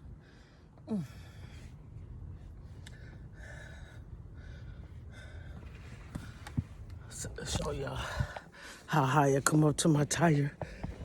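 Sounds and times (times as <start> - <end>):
person breathing heavily: 2.8 - 6.3.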